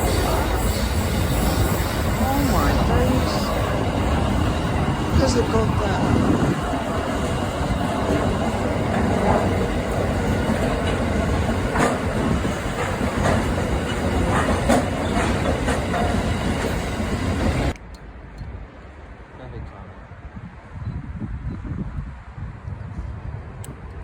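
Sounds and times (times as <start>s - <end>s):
wheels clacking over rail joints: 0.0s - 17.8s
freight train rumbling: 0.0s - 24.0s.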